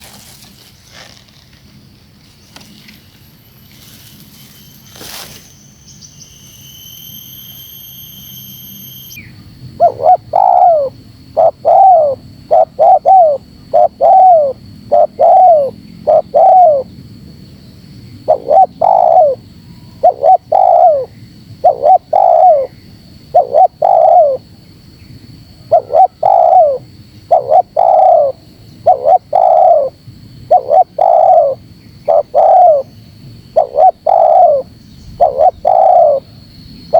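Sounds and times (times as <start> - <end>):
steady high tone: 3.3 - 16.8
dove cooing: 9.8 - 16.9, 18.2 - 19.4, 20.0 - 24.4, 25.6 - 32.9, 33.5 - 36.3.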